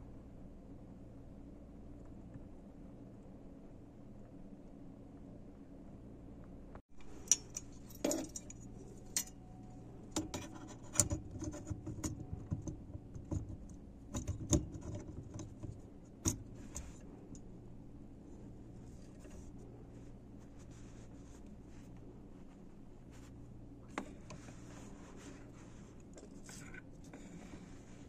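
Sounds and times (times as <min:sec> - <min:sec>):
light metallic clicks and clinks: 0:07.0 - 0:11.1.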